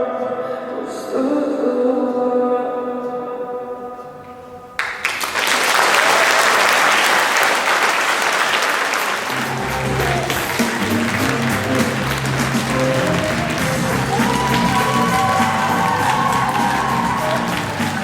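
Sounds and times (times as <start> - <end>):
audience applause: 4.8 - 18.0
held song notes: 9.3 - 18.0
music with bass line: 9.3 - 18.0.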